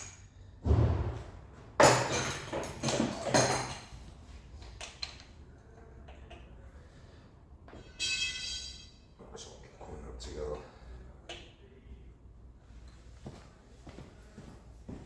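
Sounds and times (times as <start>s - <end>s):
dull thud: 0.6s - 1.6s
metal parts clattering and scraping: 1.8s - 4.0s.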